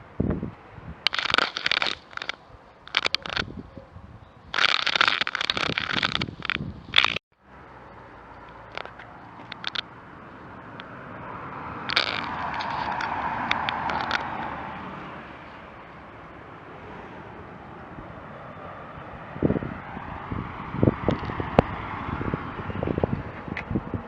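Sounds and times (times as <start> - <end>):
sharp clicks: 1.1 - 3.5, 4.5 - 7.2, 8.4 - 9.9, 11.9 - 14.5
vehicle passing by: 7.4 - 24.0.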